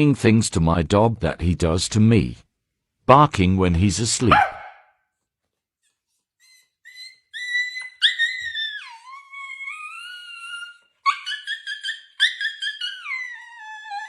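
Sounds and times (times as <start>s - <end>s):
dog whining and howling: 6.4s - 14.0s.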